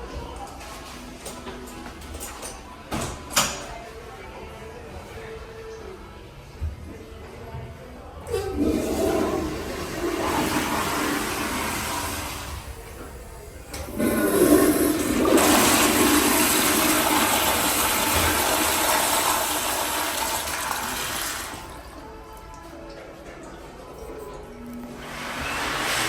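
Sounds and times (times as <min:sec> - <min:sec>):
toilet flushing: 0:08.3 - 0:22.1, 0:25.0 - 0:26.0.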